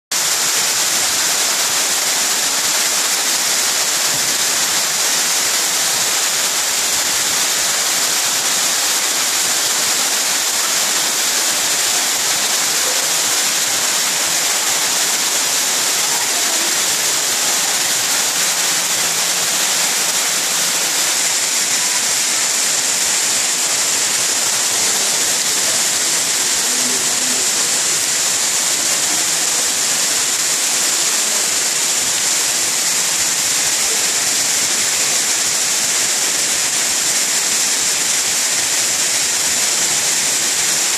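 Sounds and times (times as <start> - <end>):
rush of falling water: 0.1 - 40.9.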